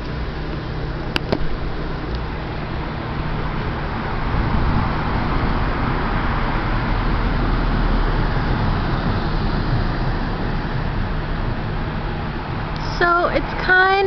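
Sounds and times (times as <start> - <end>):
steady rushing noise: 0.0 - 14.0
distant thunder rumbling: 2.4 - 13.6.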